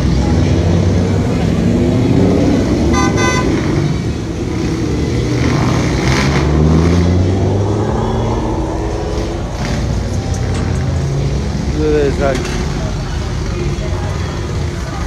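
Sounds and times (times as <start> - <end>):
car engines revving: 0.0 - 15.0
car horn toots: 2.9 - 3.8.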